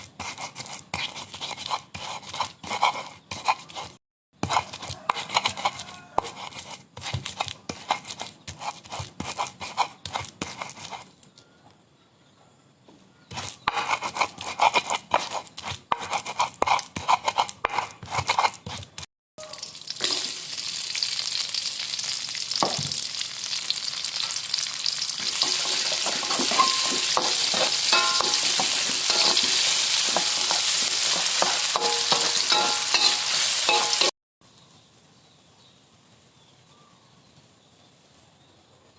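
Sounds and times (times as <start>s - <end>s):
food sizzling in hot oil: 19.4s - 34.1s
kitchen knocks and scrapes: 25.2s - 34.1s
stirring clinks: 25.2s - 34.1s.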